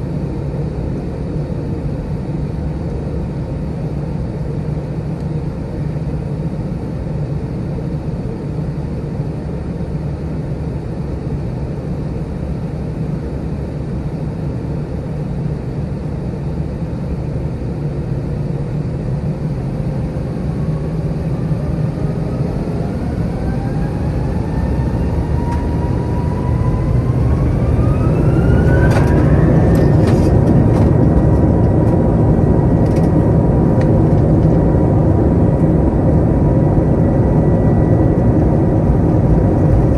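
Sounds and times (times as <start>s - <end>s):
jet engines spooling up: 17.9s - 39.9s.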